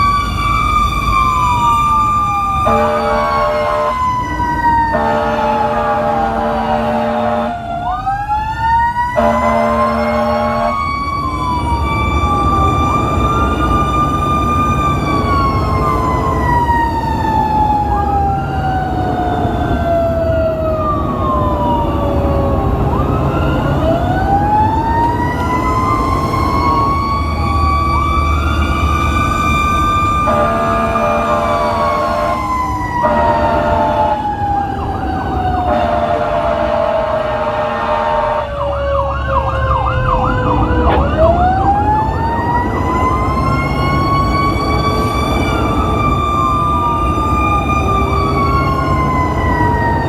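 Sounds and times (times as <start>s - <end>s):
fire engine sirens wailing: 0.0s - 50.0s
steady vehicle horn: 2.6s - 4.0s, 4.9s - 7.6s, 9.2s - 10.8s, 30.2s - 34.3s, 35.7s - 38.5s.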